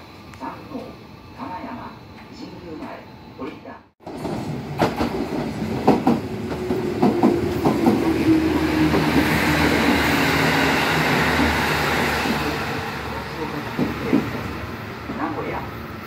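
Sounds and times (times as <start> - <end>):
passing train rumble and hum: 0.0 - 16.0
train wheels clacking over rail joints: 4.1 - 8.1.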